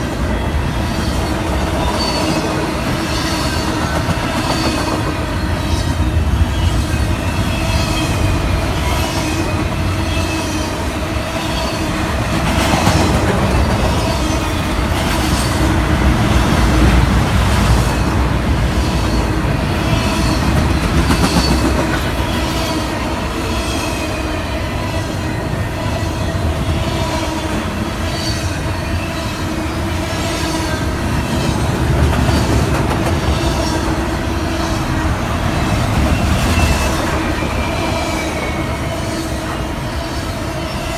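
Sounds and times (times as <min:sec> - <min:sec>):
rail joint clacks: 0:00.0 - 0:40.9
train wheels rumbling on rails: 0:00.0 - 0:40.9
faint wheel squeal: 0:35.7 - 0:40.9.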